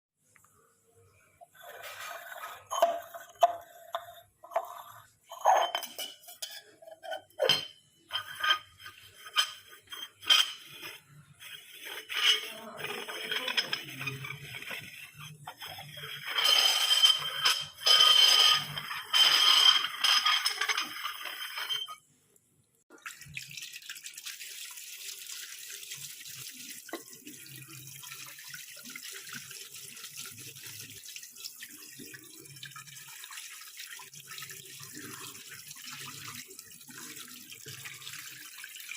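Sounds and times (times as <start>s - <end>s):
dishes clinking in a sink: 2.0s - 11.0s, 12.0s - 22.0s.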